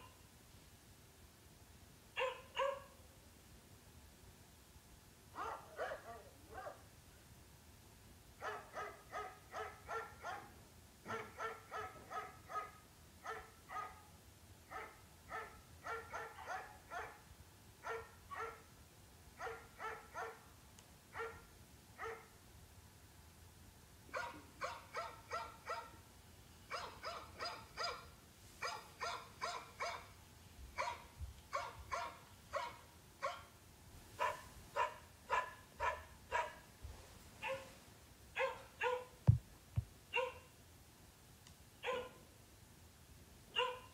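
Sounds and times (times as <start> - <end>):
dog barking: 2.2 - 3.0, 5.4 - 6.8, 8.4 - 14.1, 14.7 - 17.2, 17.8 - 18.7, 19.4 - 20.4, 21.1 - 22.3, 24.1 - 26.0, 26.7 - 30.1, 30.8 - 33.5, 34.2 - 36.7, 37.4 - 37.7, 38.4 - 39.2, 40.1 - 40.5, 41.8 - 42.2, 43.5 - 43.9.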